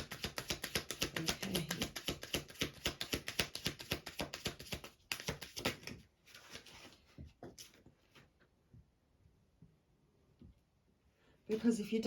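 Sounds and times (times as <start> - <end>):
cards being shuffled: 0.0 - 7.8.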